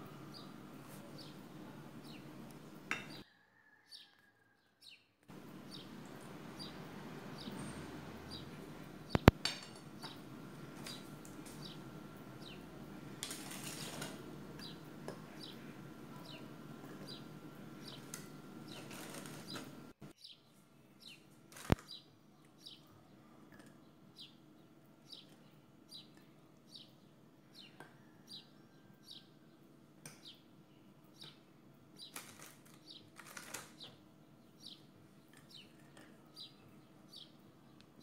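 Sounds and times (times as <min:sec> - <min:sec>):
bird chirping: 0:20.2 - 0:21.2.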